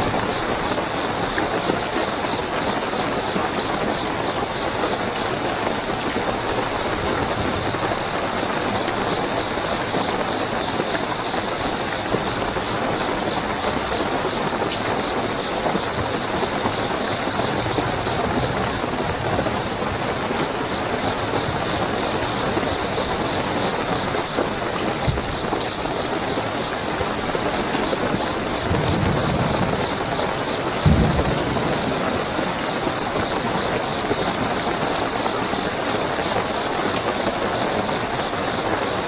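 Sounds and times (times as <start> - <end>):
cricket trill: 0.0 - 39.0
heavy rainfall: 0.0 - 39.0.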